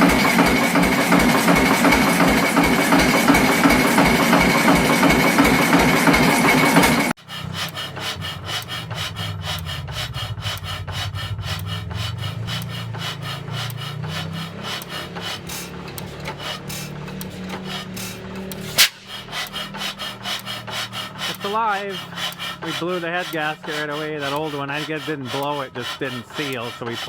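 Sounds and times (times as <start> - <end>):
old engine firing loudly: 0.0 - 7.1
old engine low drone: 0.0 - 27.0
rapid rhythmic rasping tick: 0.0 - 27.0.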